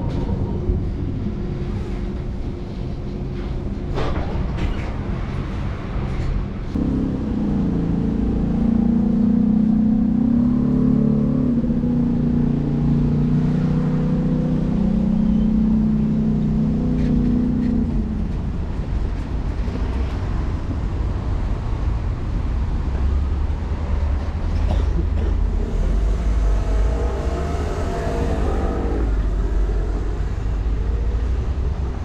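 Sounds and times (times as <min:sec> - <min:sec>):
tram wheels rumbling on rails: 0:00.0 - 0:07.9, 0:16.0 - 0:32.0
rising and falling whine: 0:06.8 - 0:18.0.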